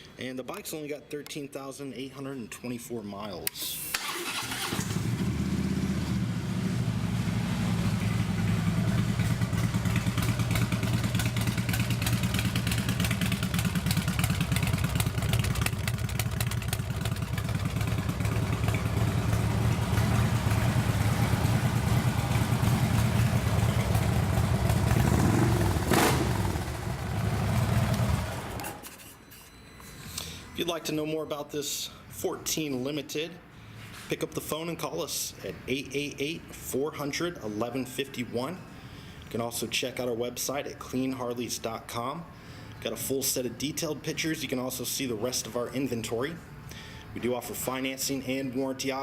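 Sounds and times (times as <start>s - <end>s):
motorcycle engine idling: 4.9s - 28.6s.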